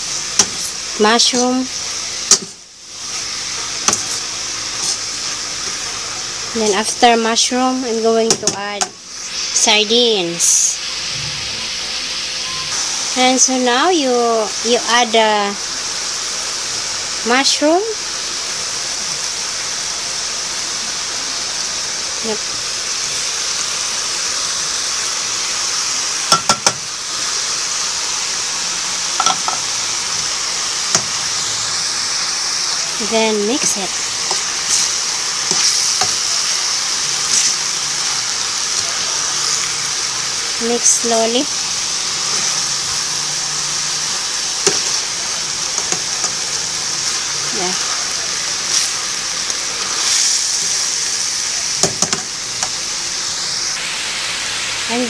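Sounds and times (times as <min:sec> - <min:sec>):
food sizzling in a frying pan: 0:00.0 - 0:55.0.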